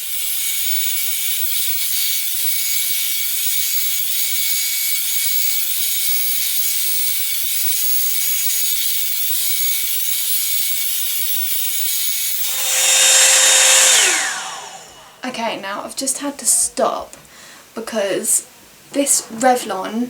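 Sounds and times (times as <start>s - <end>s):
hot air brush blowing: 12.2s - 15.4s.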